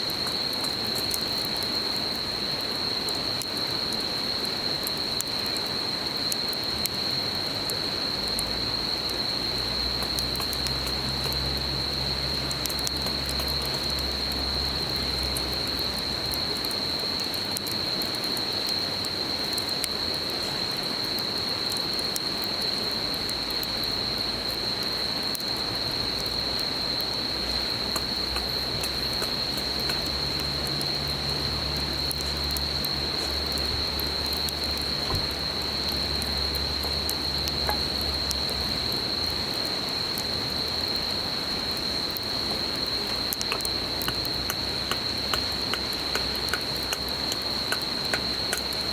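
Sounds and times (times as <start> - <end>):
campfire crackling: 0.0 - 48.9
insects trilling: 0.0 - 48.9.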